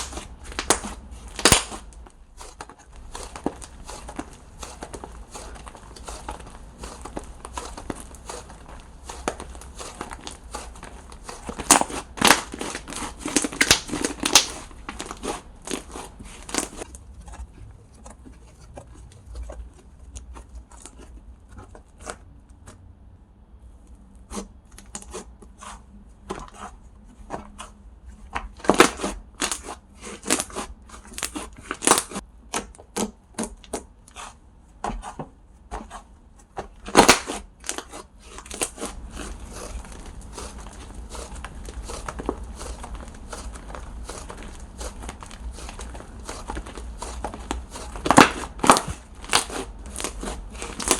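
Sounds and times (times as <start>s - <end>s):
slime clicking and popping: 0.0s - 2.0s, 3.1s - 16.8s, 41.2s - 50.9s.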